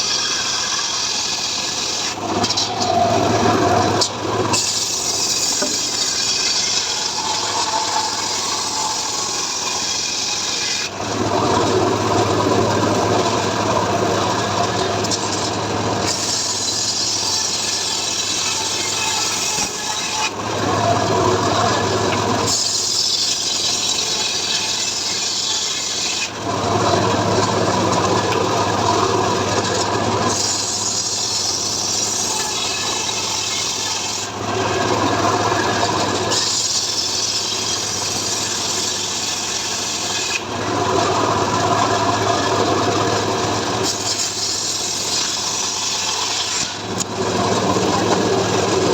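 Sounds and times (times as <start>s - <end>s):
saw cutting wood: 0.0s - 48.9s.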